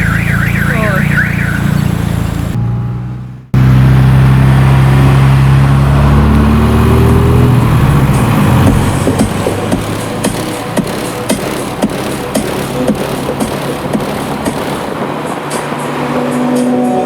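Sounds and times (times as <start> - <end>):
deep subwoofer bass: 7.7 - 15.0.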